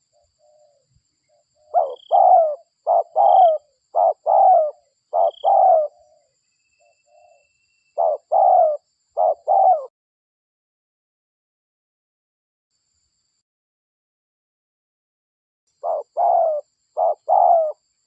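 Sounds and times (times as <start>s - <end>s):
dove cooing: 0.0s - 0.9s, 1.6s - 6.3s, 8.0s - 9.9s, 15.8s - 17.8s.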